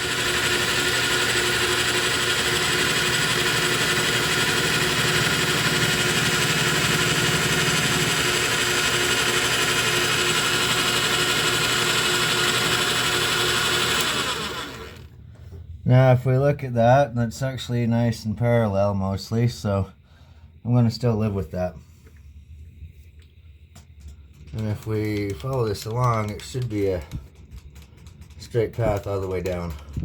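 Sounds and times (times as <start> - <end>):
metal lathe milling: 0.0 - 15.1.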